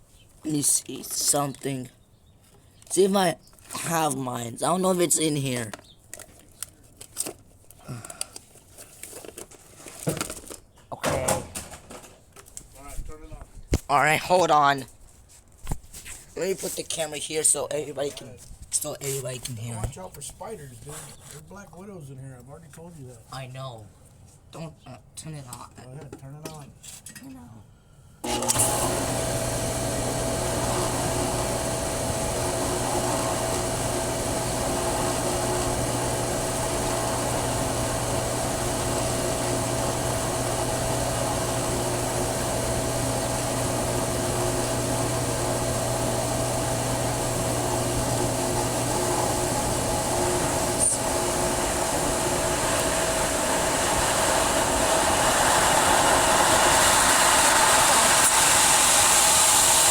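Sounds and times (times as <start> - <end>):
pump motor humming: 28.2 - 59.9.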